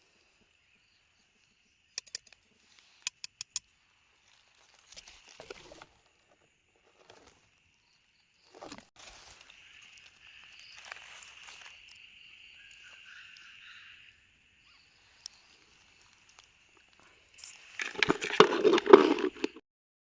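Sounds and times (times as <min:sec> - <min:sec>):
high insect hum: 0:00.0 - 0:18.6
sharp clicks: 0:02.0 - 0:02.4, 0:03.0 - 0:03.6
rustling and crunching in leaves: 0:08.6 - 0:12.0.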